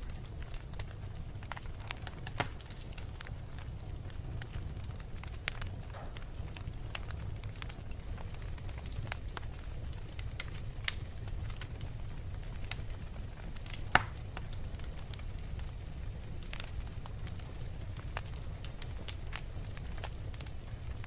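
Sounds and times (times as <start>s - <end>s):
fire crackles and pops: 0.0s - 21.0s
fire rumbling in a fireplace: 0.0s - 21.0s.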